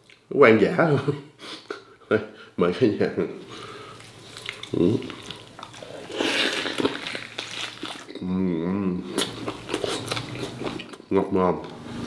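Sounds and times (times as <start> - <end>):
biting and chewing food: 3.9 - 8.2, 9.1 - 11.1
person humming mmm: 4.7 - 5.2, 8.1 - 9.3.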